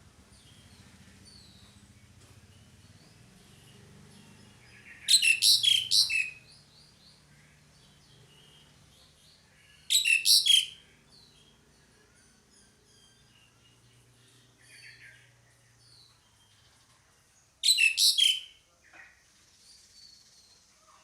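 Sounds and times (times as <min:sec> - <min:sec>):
faint bird chirps: 0:00.4 - 0:21.0
starling calling in rapid notes: 0:05.1 - 0:06.3.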